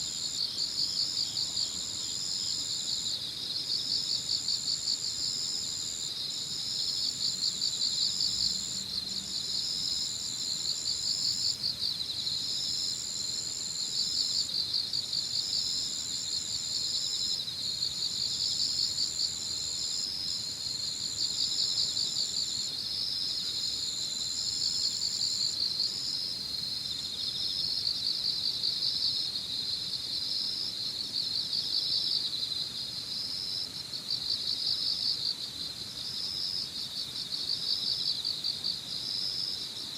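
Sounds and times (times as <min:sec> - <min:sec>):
crickets and insects chirping: 0:00.0 - 0:39.9
high steady insect trill: 0:00.0 - 0:39.9.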